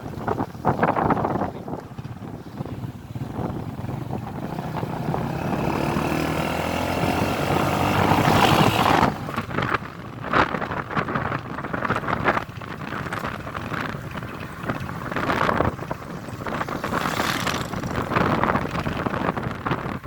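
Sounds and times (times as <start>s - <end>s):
vehicle engine accelerating: 2.0s - 9.8s, 13.0s - 20.0s
rough uneven noise: 13.0s - 20.0s.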